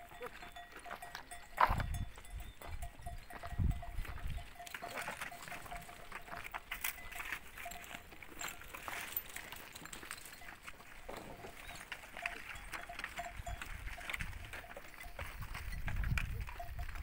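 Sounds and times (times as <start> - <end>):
animal bells clinking: 0.0 - 17.0
goats and sheep moving about: 0.0 - 17.0.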